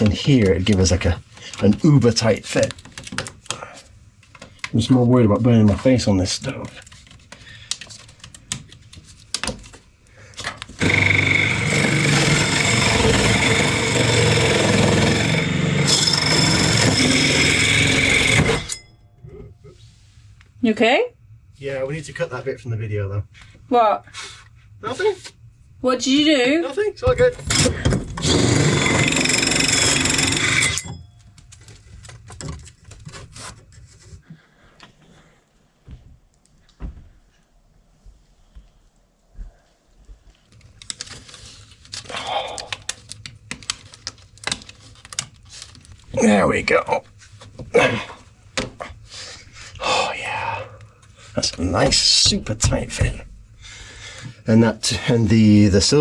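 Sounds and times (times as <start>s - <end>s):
power drill drilling: 10.8s - 18.8s, 27.5s - 30.9s.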